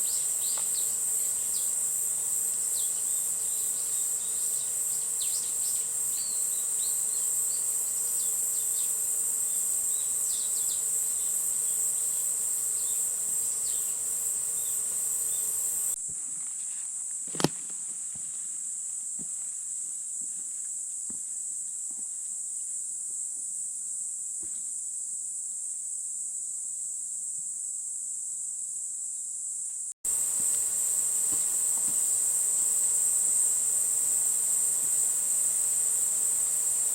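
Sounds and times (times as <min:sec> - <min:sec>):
insect chorus drone: 0:00.0 - 0:36.9.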